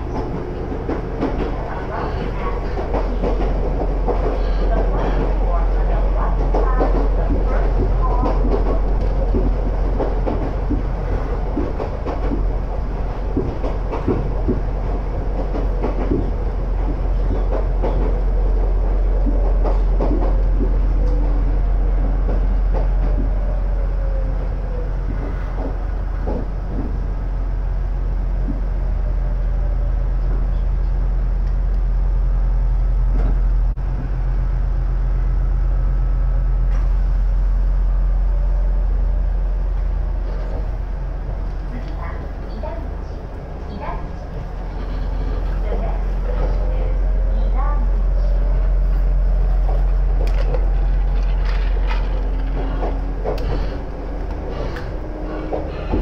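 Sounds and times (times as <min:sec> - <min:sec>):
wheels clicking over rail joints: 0:00.0 - 0:27.0, 0:49.4 - 0:56.0
train running rumble: 0:00.0 - 0:56.0.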